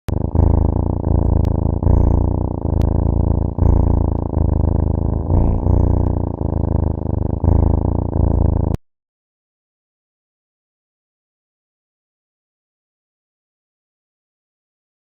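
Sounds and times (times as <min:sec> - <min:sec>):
cat purring loudly: 0:00.0 - 0:08.8.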